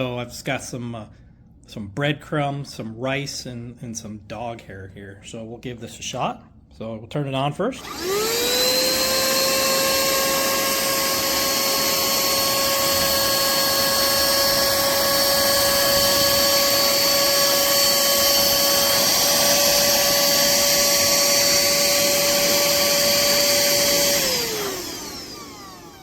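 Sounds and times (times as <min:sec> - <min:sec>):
handheld vacuum cleaner running: 0:07.8 - 0:26.0.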